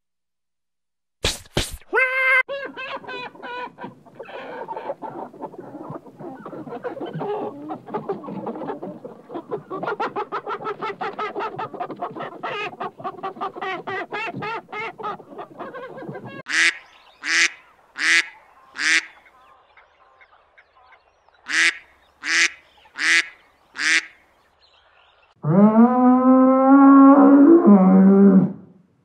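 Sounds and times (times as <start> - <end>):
hen clucking: 2.5 - 24.1
duck quacking: 16.5 - 19.4, 21.5 - 24.2.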